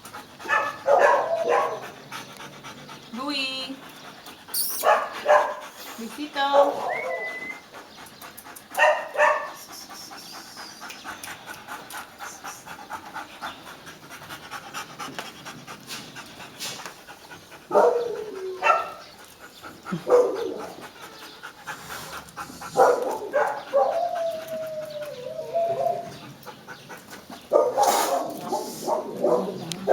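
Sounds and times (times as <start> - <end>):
dog panting: 0.0 - 29.9
dog whining: 4.5 - 5.4, 6.6 - 7.7, 22.8 - 26.3.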